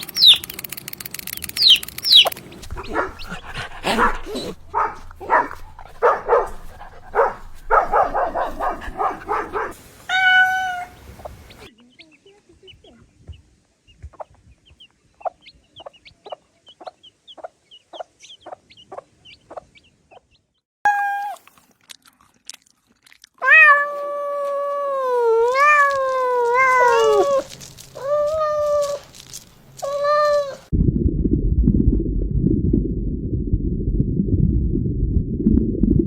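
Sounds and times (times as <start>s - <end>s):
cat meowing: 7.6s - 11.0s, 23.4s - 29.0s, 29.8s - 30.7s
loud low rumble: 30.7s - 36.0s.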